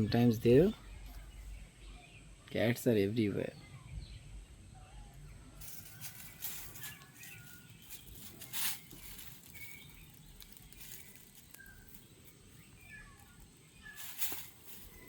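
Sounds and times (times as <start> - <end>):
faint bird chirps: 0.0 - 15.0
kittens scuffling and scratching: 5.6 - 15.0.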